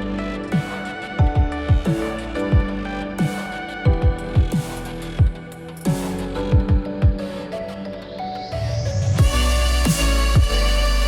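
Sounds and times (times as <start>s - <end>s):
deep bass drum hits: 1.2s - 2.8s, 3.9s - 4.6s, 9.2s - 9.6s.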